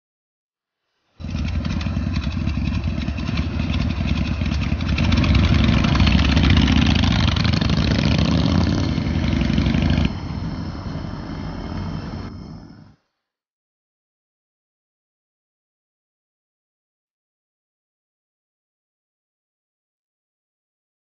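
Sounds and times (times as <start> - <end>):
motorcycle engine running: 1.2 - 12.6.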